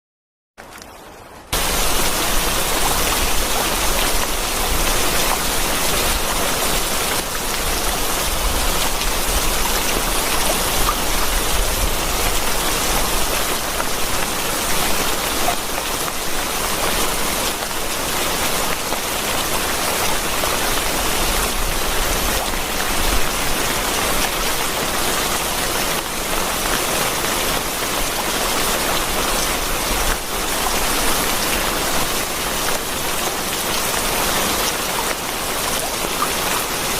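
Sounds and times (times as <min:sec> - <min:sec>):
heavy rain: 0:00.6 - 0:36.9.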